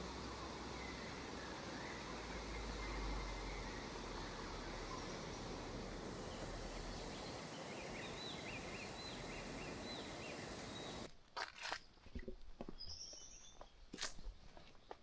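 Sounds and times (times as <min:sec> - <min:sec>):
footsteps crunching on trail: 0:11.3 - 0:15.0.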